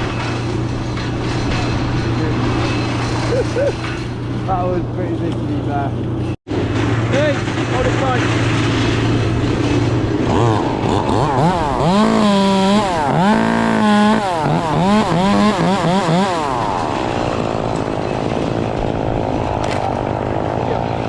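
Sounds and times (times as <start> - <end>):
chainsaw revving: 9.9 - 18.0.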